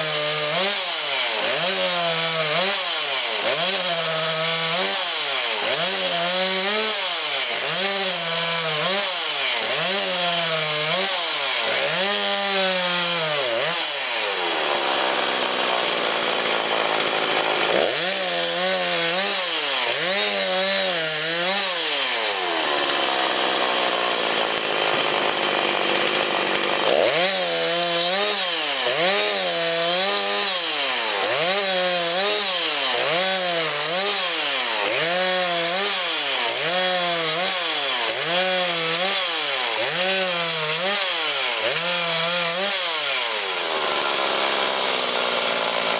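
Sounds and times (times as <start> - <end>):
chainsaw cutting logs: 0.0 - 45.9.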